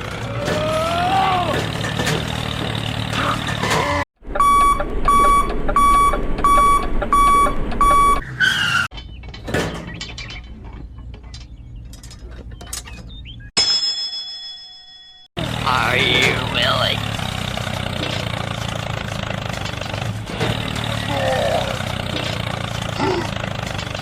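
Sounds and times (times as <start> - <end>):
electronic beeps: 4.4 - 8.2.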